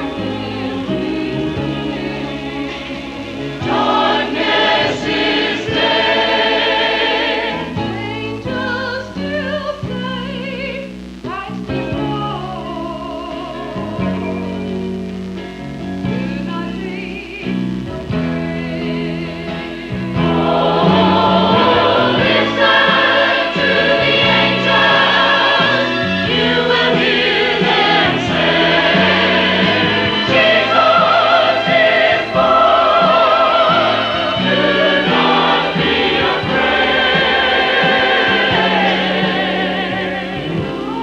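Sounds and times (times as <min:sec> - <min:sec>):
choir singing in parts: 0:00.0 - 0:09.3, 0:18.4 - 0:41.0
musical accompaniment: 0:00.0 - 0:41.0.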